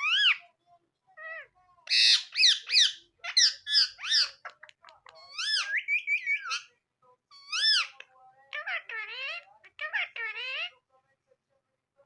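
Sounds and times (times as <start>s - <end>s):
parrot squawking: 0.0s - 0.4s, 1.2s - 6.7s, 7.3s - 10.8s.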